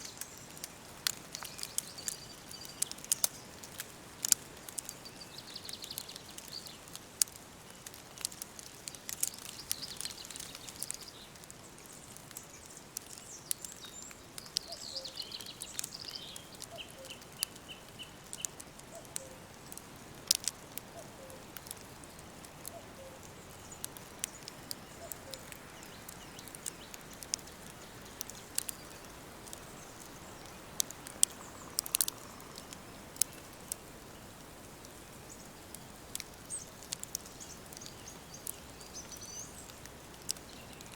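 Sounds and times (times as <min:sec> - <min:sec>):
sharp crackling clicks: 0:00.0 - 0:40.9
soft steady hiss: 0:00.0 - 0:40.9
songbirds singing: 0:00.0 - 0:40.9
faint low bird calls: 0:09.2 - 0:19.8, 0:20.4 - 0:40.9.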